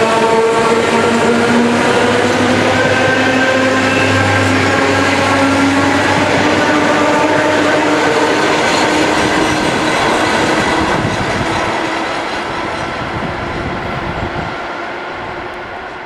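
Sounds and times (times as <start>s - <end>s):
electric train running on rails: 0.0s - 16.0s.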